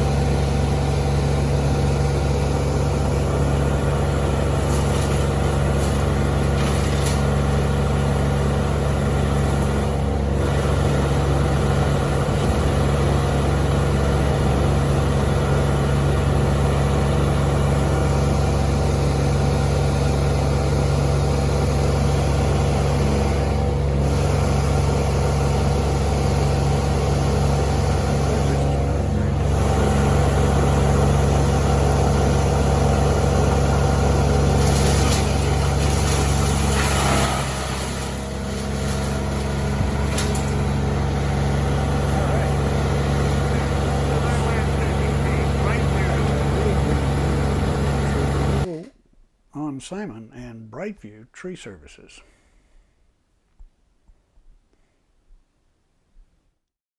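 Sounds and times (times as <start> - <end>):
large engine running: 0.0 - 48.7.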